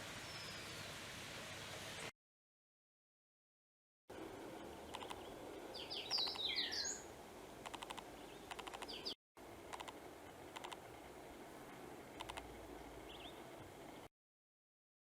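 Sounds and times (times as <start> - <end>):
faint outdoor hiss: 0.0 - 2.1, 4.1 - 14.1
dry rattling bird calls: 4.9 - 6.9, 7.7 - 9.2
high bird chirps: 4.9 - 7.0.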